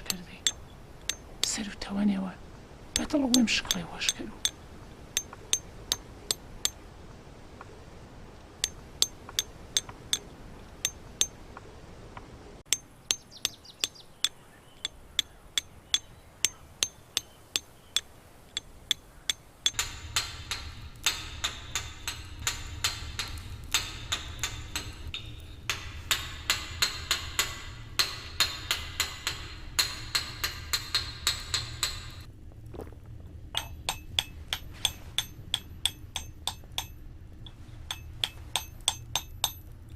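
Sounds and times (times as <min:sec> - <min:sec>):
steady background noise: 0:00.0 - 0:39.9
hammer striking chisel on stone: 0:00.1 - 0:01.3, 0:08.6 - 0:11.4, 0:12.7 - 0:32.3, 0:33.6 - 0:37.0, 0:37.9 - 0:39.8.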